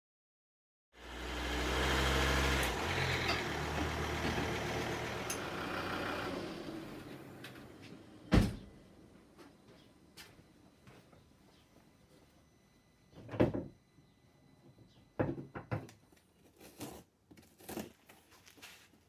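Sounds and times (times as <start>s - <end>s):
diesel engine humming: 1.0s - 10.1s
loud thump: 8.3s - 8.7s.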